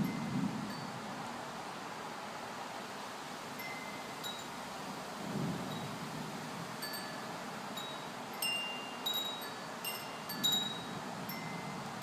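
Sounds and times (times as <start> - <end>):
steady rush of wind: 0.0 - 12.0
wind chimes ringing: 3.6 - 4.5, 6.8 - 12.0.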